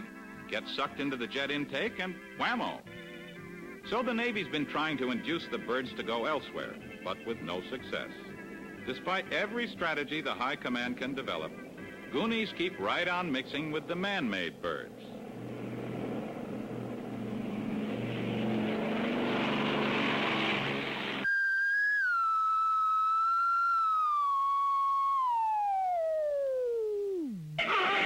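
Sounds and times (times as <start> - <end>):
aircraft engine noise: 8.3 - 21.2
comic falling whistle: 21.2 - 28.0.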